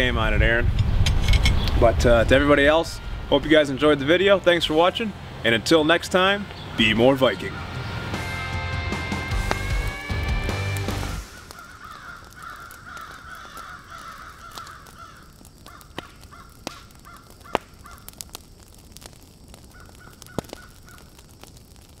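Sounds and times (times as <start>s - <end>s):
crow-like cawing: 11.2s - 18.2s, 19.7s - 21.2s.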